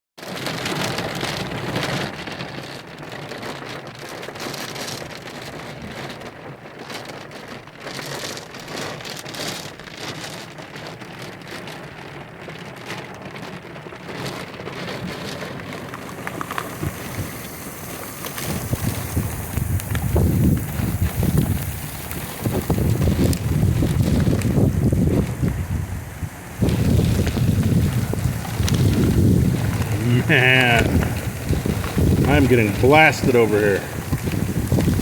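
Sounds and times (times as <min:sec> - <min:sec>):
heavy rain pouring: 0:00.2 - 0:35.0
strong wind: 0:14.9 - 0:35.0.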